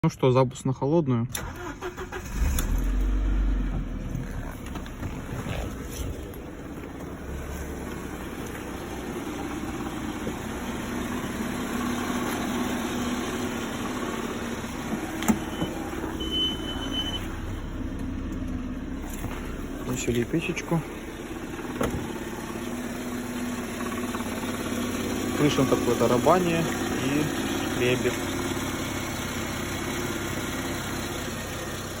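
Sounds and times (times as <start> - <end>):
car engine idling: 1.3 - 32.0
short high beep: 15.4 - 17.3.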